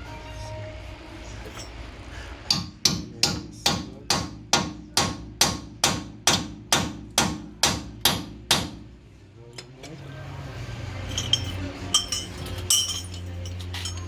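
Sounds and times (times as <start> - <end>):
hammer striking metal: 2.4 - 8.9.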